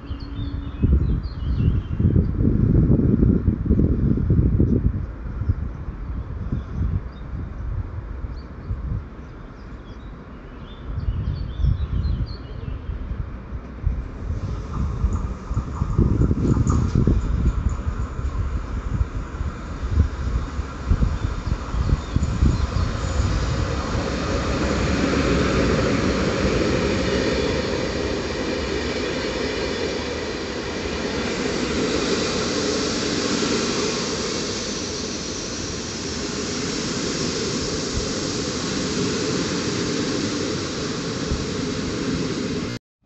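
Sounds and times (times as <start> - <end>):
train wheels on rail: 13.1 - 42.8.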